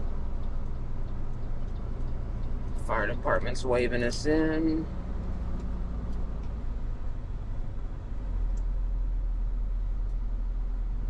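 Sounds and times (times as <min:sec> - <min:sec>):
tow truck engine rumbling: 0:00.0 - 0:11.0.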